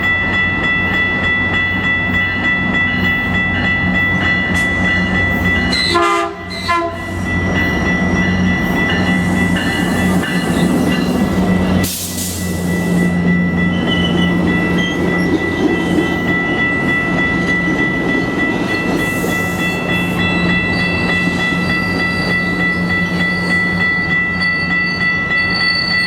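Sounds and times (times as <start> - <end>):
high ringing tone: 0.0 - 26.0
train rumbling past: 0.0 - 26.0
train horn blast: 5.7 - 7.2.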